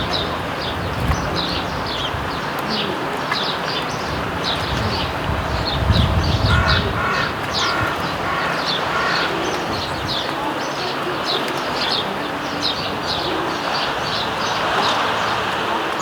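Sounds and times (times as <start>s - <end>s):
sparrows chirping: 0.0s - 16.0s
low rumble: 4.1s - 8.3s.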